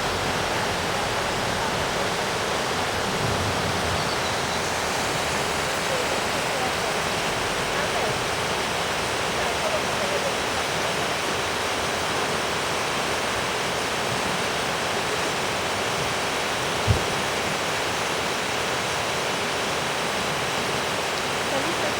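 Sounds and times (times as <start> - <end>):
waterfall rushing: 0.0 - 21.9
low thump: 16.8 - 17.2.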